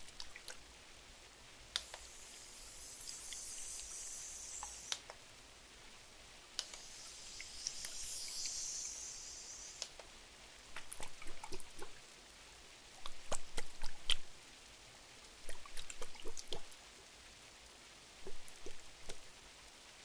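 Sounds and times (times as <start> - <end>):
soft high hiss: 0.0 - 20.0
sharp crackling ticks: 1.8 - 5.2, 6.6 - 10.1.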